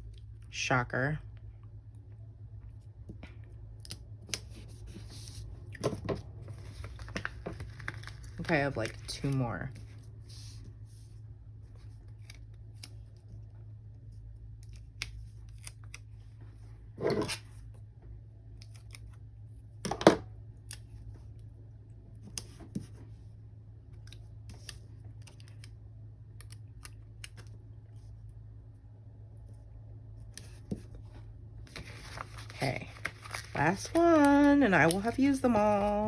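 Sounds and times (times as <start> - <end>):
low steady hum: 0.0 - 36.0
paper rustling: 4.4 - 11.1, 31.7 - 36.0.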